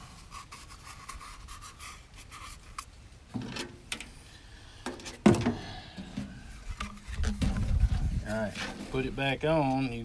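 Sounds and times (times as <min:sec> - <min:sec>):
duct hose rustling scrapes: 0:06.4 - 0:09.8.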